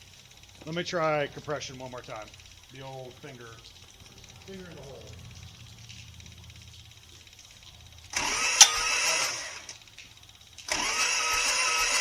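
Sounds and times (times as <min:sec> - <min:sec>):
starter motor cranking diesel engine: 0:00.0 - 0:12.0
sharp crack: 0:01.7 - 0:10.9.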